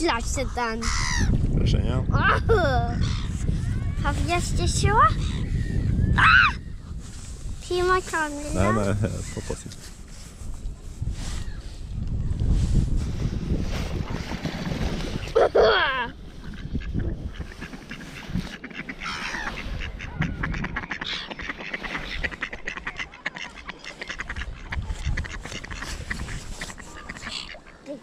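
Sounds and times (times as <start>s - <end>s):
wind on microphone: 0.0s - 27.6s
ducks and geese calling: 0.4s - 1.4s, 8.1s - 9.7s, 15.1s - 28.0s
rapid quacking: 16.4s - 28.0s.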